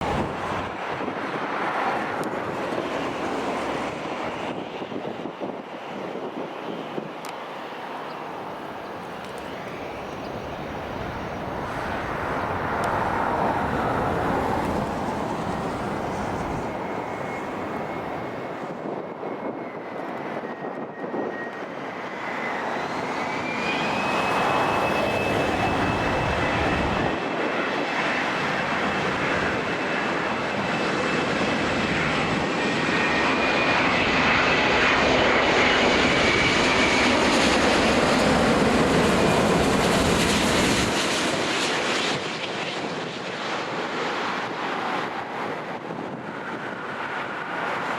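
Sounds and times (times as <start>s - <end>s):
jet airliner engines approaching: 0.0s - 47.9s.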